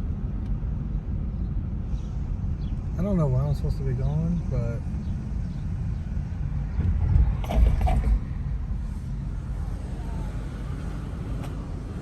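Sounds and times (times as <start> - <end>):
car driving rumble: 0.0 - 12.0
creaking noise: 6.9 - 8.4.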